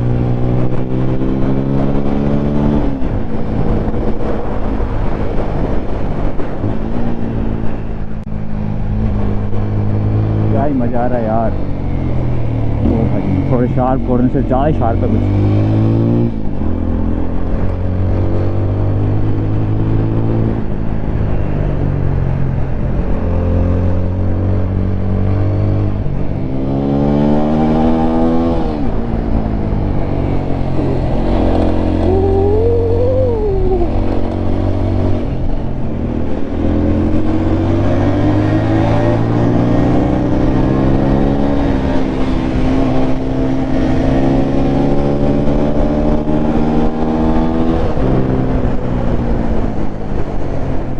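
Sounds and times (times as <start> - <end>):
motorcycle engine revving: 23.6 - 48.8.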